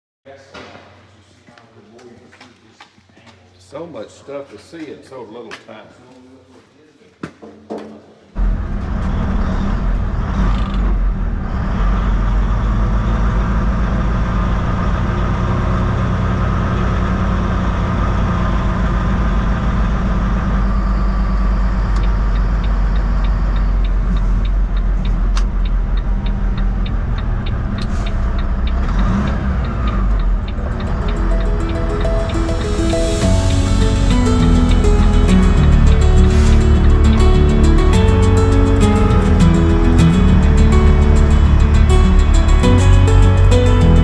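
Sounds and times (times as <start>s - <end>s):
road noise: 8.4s - 19.2s, 25.8s - 44.0s
heavy vehicle engine rumbling: 8.4s - 23.7s, 29.5s - 44.0s.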